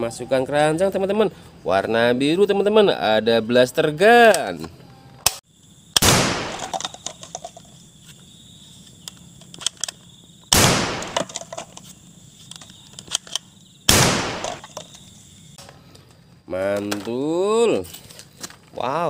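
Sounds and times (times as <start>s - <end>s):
small clicks: 8.9s - 10.1s, 11.0s - 13.5s.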